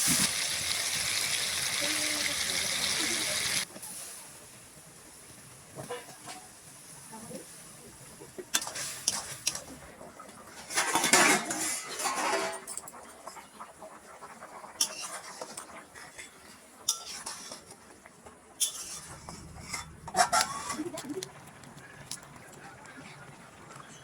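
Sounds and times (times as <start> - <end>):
metal cookware scraping: 10.6 - 13.0, 14.8 - 16.3, 16.9 - 17.7, 18.6 - 21.1.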